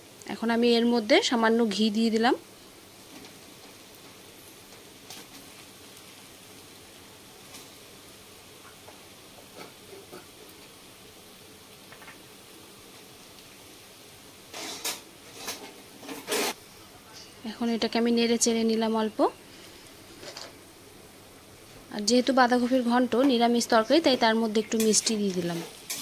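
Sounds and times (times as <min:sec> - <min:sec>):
faint steady sizzle: 0:00.0 - 0:26.0
metal spatula scraping pan: 0:14.5 - 0:16.6.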